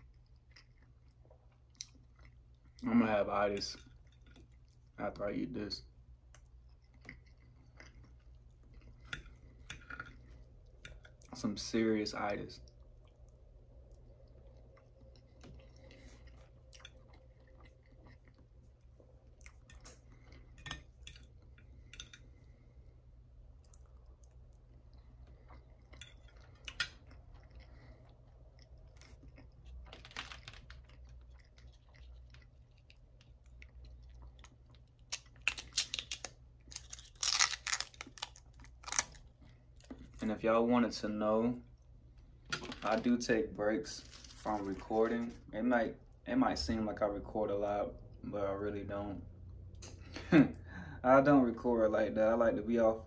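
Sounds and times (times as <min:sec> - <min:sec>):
close-miked chewing: 0:00.0 - 0:03.0, 0:05.9 - 0:11.4, 0:12.6 - 0:22.9, 0:23.5 - 0:40.2
plastic packet crinkling: 0:29.8 - 0:31.3, 0:35.4 - 0:39.1.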